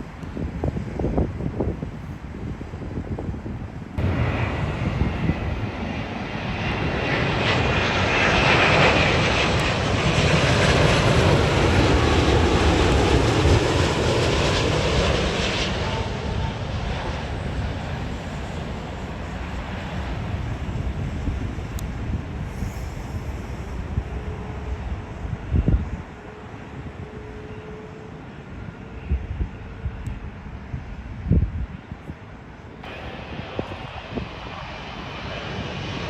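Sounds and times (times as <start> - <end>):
jet airliner passing: 0.0 - 36.0
jet engine whine: 0.0 - 36.0.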